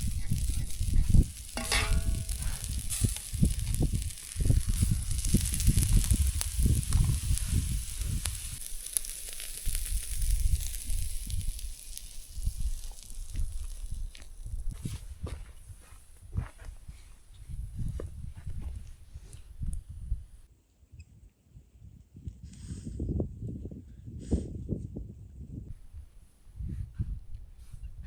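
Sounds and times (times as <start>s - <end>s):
low rumbling: 0.0s - 15.3s
chicken sizzling over fire: 0.0s - 16.0s.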